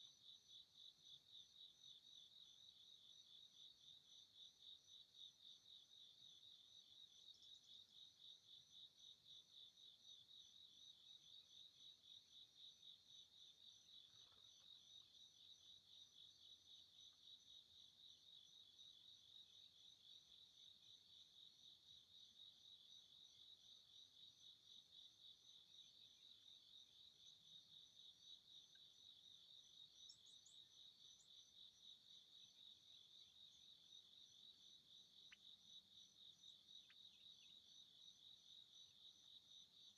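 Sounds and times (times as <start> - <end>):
crickets trilling: 29.9 - 31.5.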